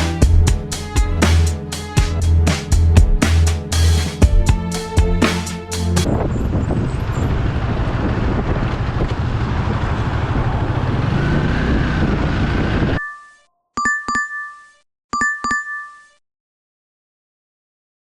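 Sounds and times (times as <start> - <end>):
motorcycle road and wind rumble: 6.0 - 13.0.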